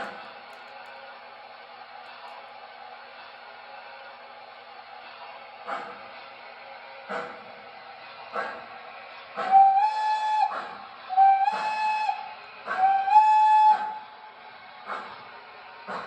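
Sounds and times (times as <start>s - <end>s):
model steam whistle blasts: 9.4s - 14.1s
slow regular chuffing: 12.6s - 16.0s.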